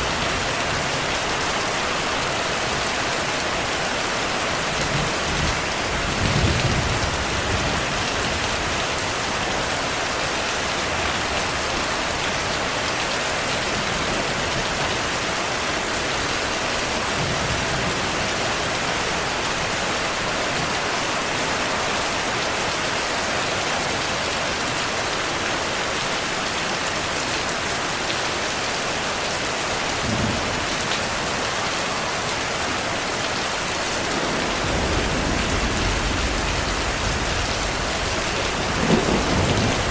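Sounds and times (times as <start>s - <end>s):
steady rain falling: 0.0s - 39.9s
low thunder rumbles: 4.9s - 8.9s, 33.9s - 39.9s.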